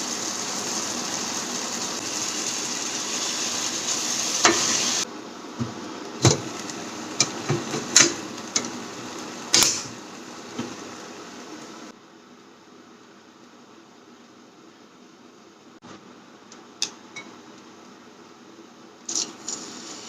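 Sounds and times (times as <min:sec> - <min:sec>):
food sizzling: 0:00.0 - 0:12.0, 0:19.1 - 0:20.0.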